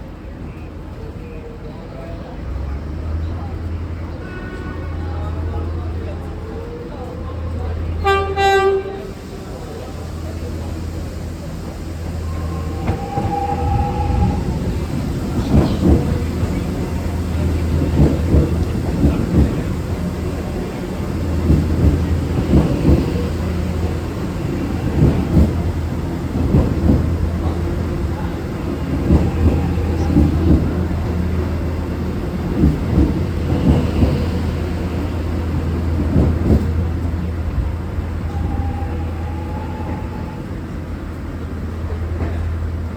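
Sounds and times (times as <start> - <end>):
train low rumble: 0.0 - 42.9
train wheels clacking: 9.0 - 40.3.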